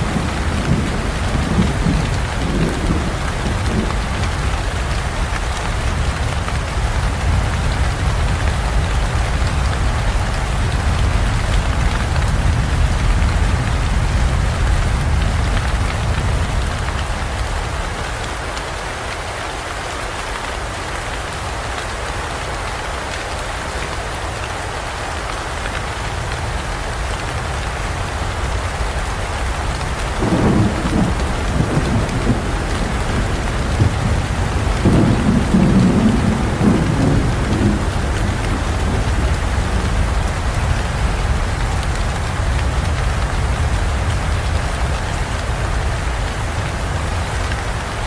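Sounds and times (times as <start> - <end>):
thunder rumbling: 0.0 - 16.7, 29.3 - 44.6
heavy rain in forest: 0.0 - 48.0.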